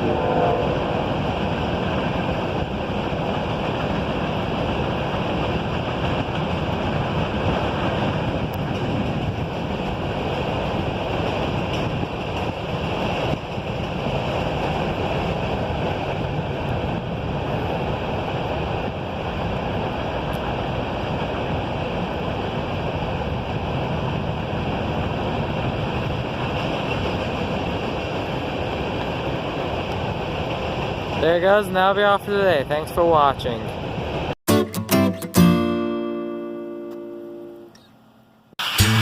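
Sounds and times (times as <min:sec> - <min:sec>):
train wheels rumbling on rails: 0:00.0 - 0:34.4.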